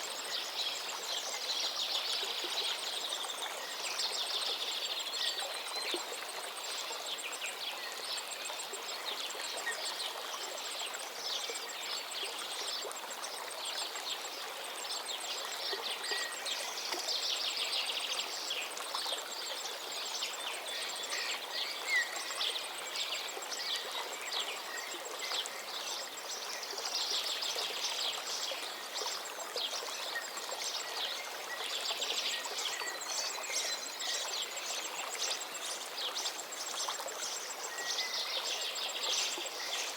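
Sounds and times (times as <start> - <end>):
river flowing: 0.0 - 39.9
songbirds singing: 20.2 - 39.9.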